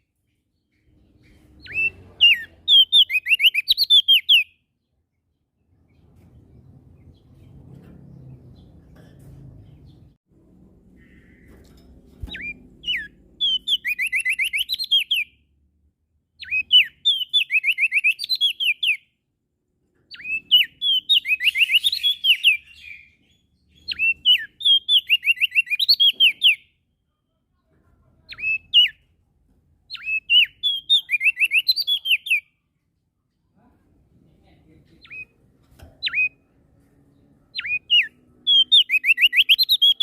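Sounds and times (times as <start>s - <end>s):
songbird singing: 0.0s - 10.2s, 10.8s - 15.5s, 16.4s - 19.2s, 20.0s - 26.9s, 28.3s - 29.2s, 29.8s - 32.7s, 34.4s - 40.0s.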